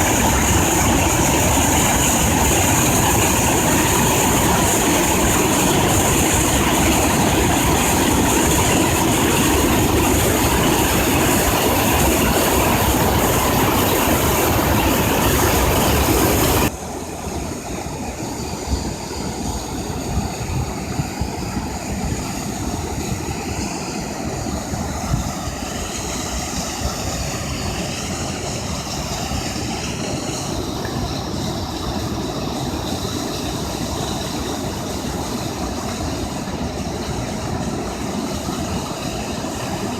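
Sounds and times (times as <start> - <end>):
waterfall rushing: 0.0 - 18.3.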